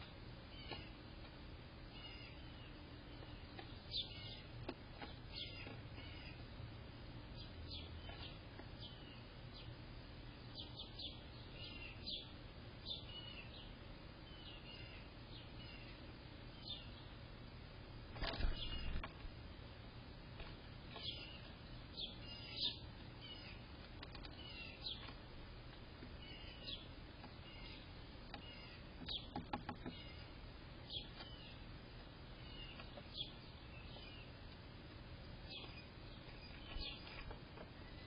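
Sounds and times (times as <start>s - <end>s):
faint background hiss: 0.0s - 38.0s
small bird chirping: 0.4s - 1.1s, 1.8s - 17.2s, 18.2s - 19.3s, 20.4s - 38.0s.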